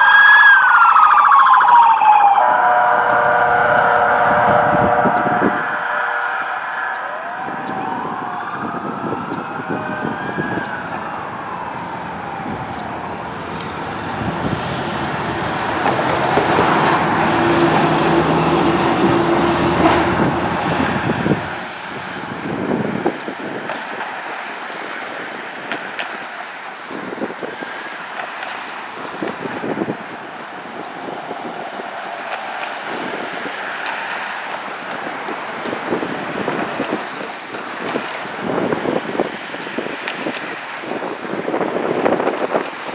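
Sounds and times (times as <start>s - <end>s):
emergency vehicle siren: 0.0s - 28.1s
road traffic: 0.0s - 42.9s
heavy vehicle engine and tyres: 2.1s - 42.9s.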